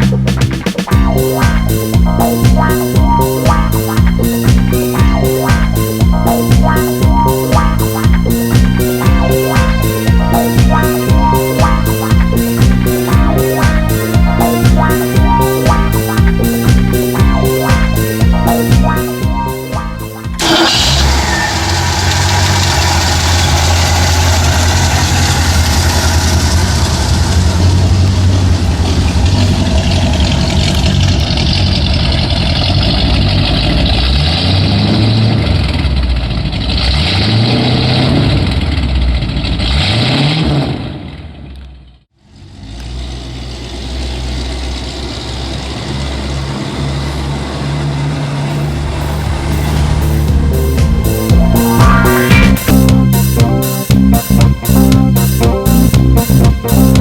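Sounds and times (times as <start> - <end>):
car engine idling: 0.0 - 39.8, 40.9 - 57.0
car engine revving: 0.0 - 57.0.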